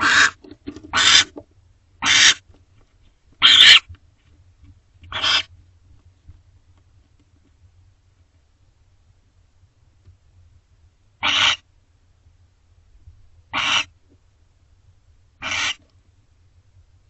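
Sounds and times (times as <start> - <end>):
owl hissing screeches: 0.0 - 1.3, 2.0 - 2.4, 3.4 - 3.9, 5.1 - 5.5, 11.2 - 11.6, 13.5 - 13.9, 15.4 - 15.8.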